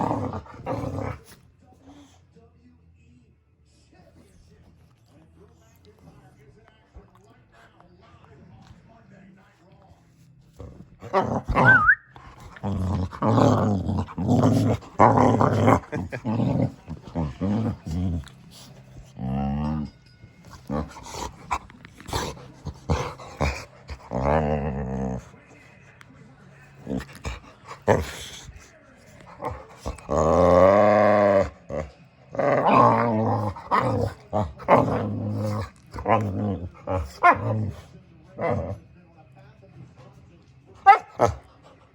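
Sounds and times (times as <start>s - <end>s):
dog growling: 0.0s - 2.2s, 10.5s - 25.6s, 26.7s - 38.8s.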